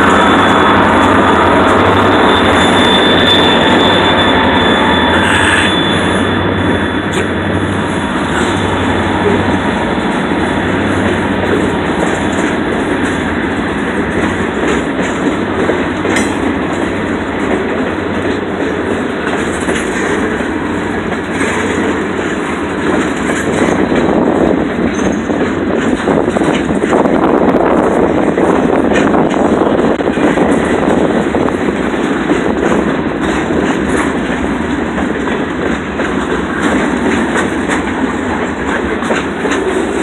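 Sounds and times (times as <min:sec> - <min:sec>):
freight train cars rolling: 0:00.0 - 0:40.0.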